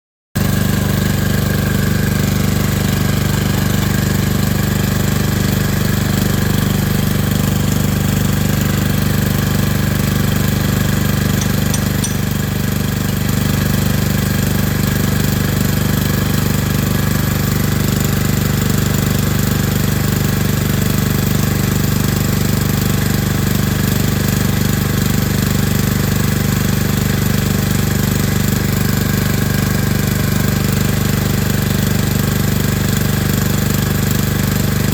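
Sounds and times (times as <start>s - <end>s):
engine running with knocking: 0.4s - 34.9s.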